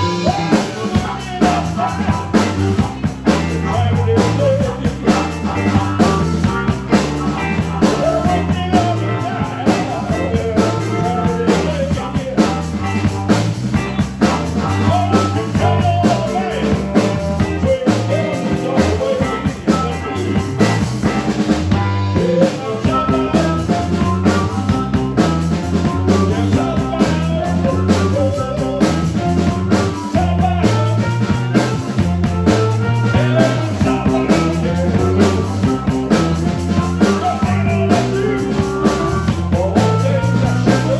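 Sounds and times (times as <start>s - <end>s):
drum kit beat: 0.0s - 40.9s
rock band playing live: 0.0s - 40.9s.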